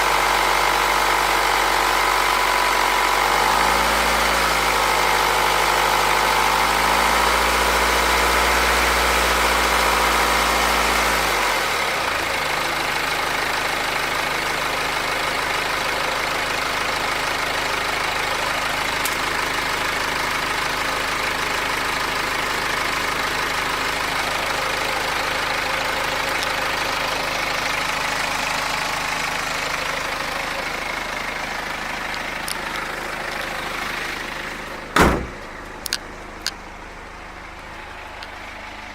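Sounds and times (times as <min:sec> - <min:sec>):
diesel engine idling: 0:11.2 - 0:38.9.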